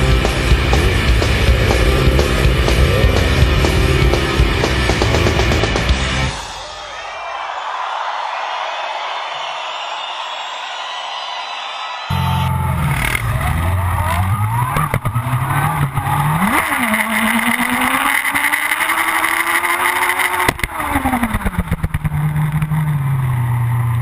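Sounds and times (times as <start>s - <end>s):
engine crackling: 0.0s - 6.3s, 12.1s - 24.0s
motorcycle engine revving: 0.0s - 6.3s, 12.1s - 24.0s.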